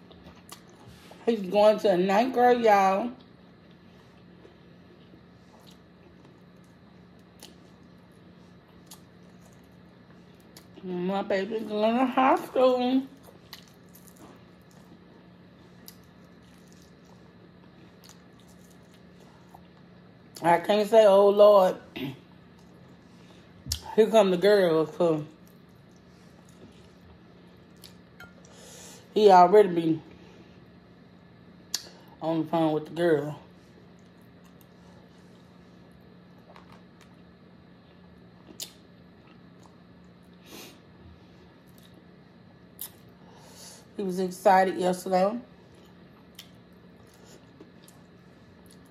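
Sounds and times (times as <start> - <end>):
low steady hum: 0.0 - 48.9
person chewing: 3.6 - 10.8, 13.2 - 19.9, 25.4 - 28.5, 36.3 - 37.3, 45.7 - 48.9.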